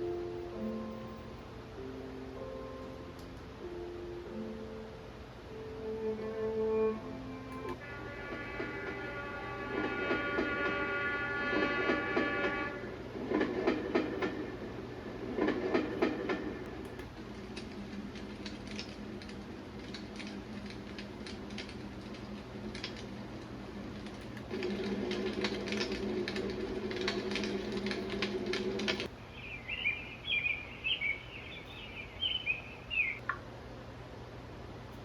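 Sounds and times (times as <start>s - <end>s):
white noise machine track with clicks: 0.0s - 4.7s, 7.4s - 14.8s, 15.4s - 29.2s, 31.5s - 35.0s
recorded birdsong chirps: 29.0s - 33.3s.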